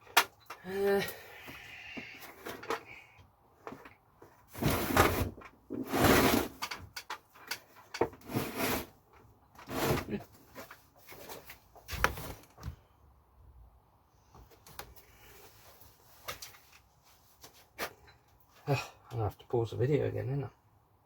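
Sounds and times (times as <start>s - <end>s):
clicks and knocks of items moved: 2.0s - 3.0s, 3.6s - 12.8s, 15.7s - 18.3s
scraping rustles: 9.6s - 12.6s.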